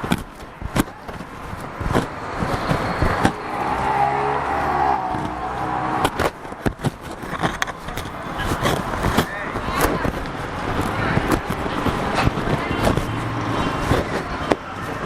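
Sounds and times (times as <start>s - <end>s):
knocks and clicks: 0.0s - 3.5s
vehicle engine passing: 1.6s - 15.0s.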